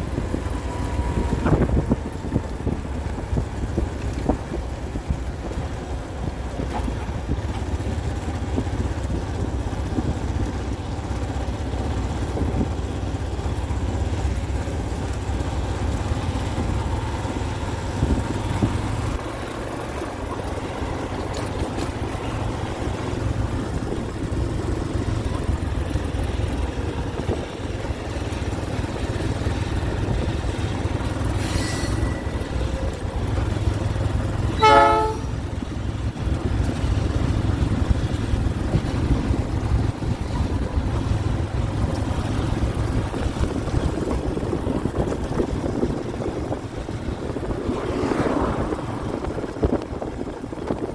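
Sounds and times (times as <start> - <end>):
diesel locomotive rumble: 0.0 - 50.9
locomotive horn blast: 34.4 - 35.5.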